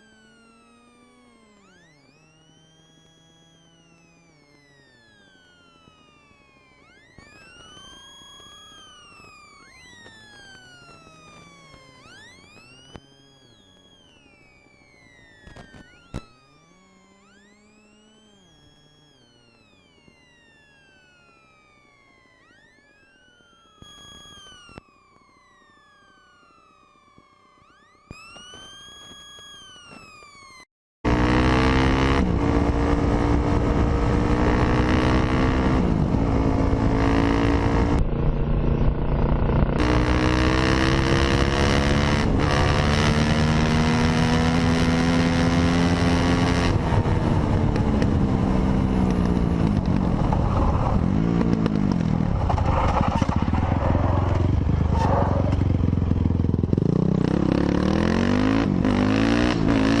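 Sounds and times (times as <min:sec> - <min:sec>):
dirt bike engine revving: 0:31.1 - 1:00.0.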